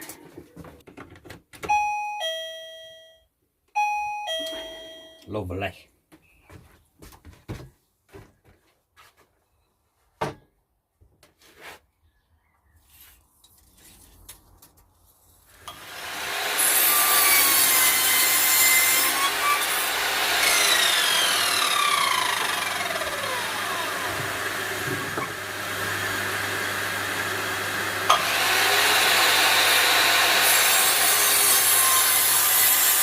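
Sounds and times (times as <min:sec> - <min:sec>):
electric machine rushing noise: 0:15.7 - 0:31.0.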